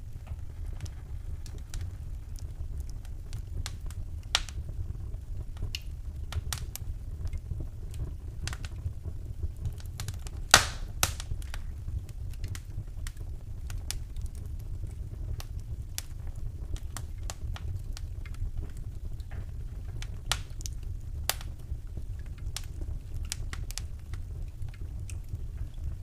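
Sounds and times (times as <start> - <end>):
low fire rumble: 0.0 - 26.0
wood fire crackling and popping: 0.0 - 26.0.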